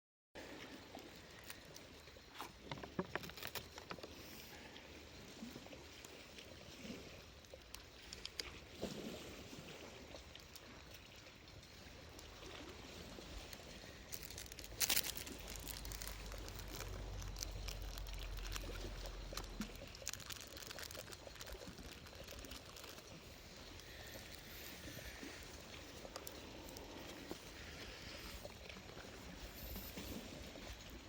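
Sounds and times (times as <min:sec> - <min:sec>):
small crackles and clicks: 0:00.6 - 0:04.8, 0:05.4 - 0:31.0
liquid pouring: 0:11.7 - 0:28.5.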